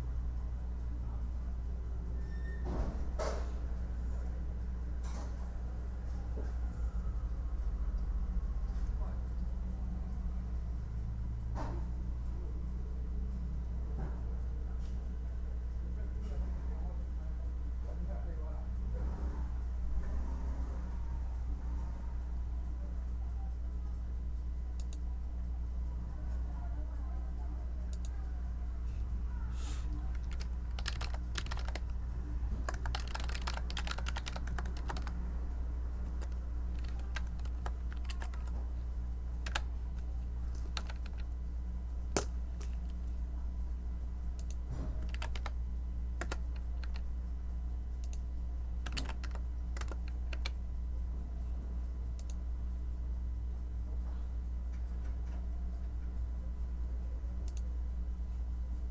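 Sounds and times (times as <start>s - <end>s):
steady low hum: 20.9s - 58.9s
typing on keyboard: 30.0s - 35.2s, 35.9s - 38.8s, 39.4s - 41.4s, 42.1s - 43.0s, 44.4s - 45.6s, 46.2s - 47.1s, 48.8s - 50.6s.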